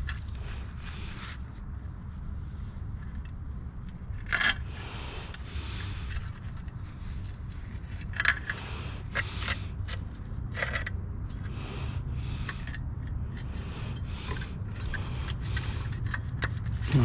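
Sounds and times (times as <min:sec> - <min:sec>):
low hum: 0:00.0 - 0:17.0
motorcycle chain being scrubbed: 0:04.2 - 0:17.0.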